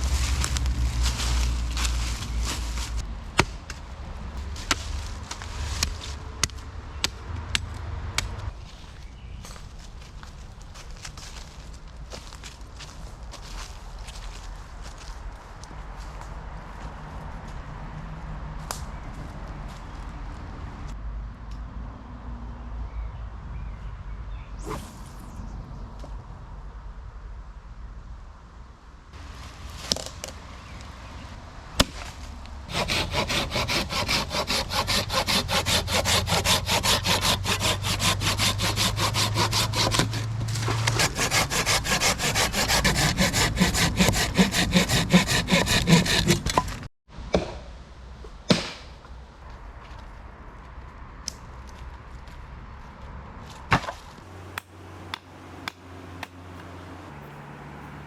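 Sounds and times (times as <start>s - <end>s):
saw cutting through wood: 32.7s - 46.9s.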